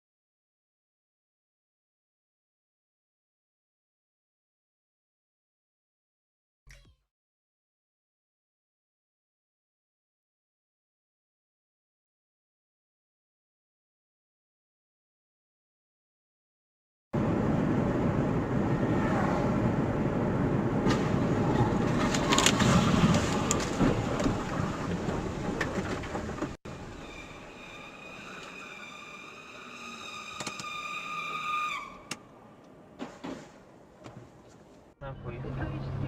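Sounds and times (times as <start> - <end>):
vehicle road noise: 17.2 - 36.0.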